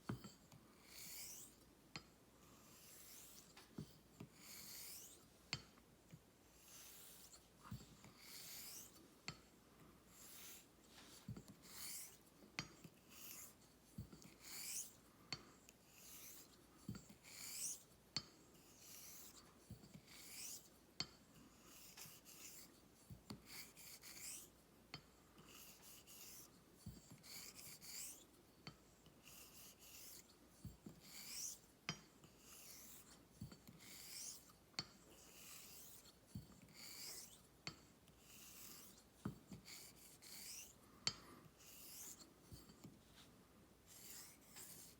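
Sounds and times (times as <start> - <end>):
razor scraping on honing stone: 0.8 - 1.6, 2.6 - 3.6, 4.4 - 5.2, 6.6 - 9.4, 10.1 - 10.7, 11.3 - 15.0, 15.9 - 17.9, 18.6 - 24.6, 25.5 - 42.9, 43.9 - 44.9.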